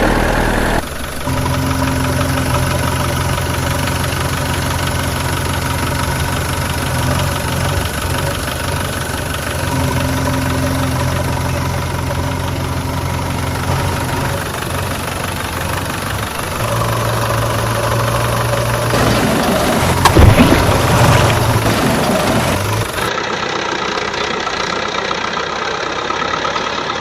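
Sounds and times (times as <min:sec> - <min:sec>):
truck engine idling: 0:00.0 - 0:27.0.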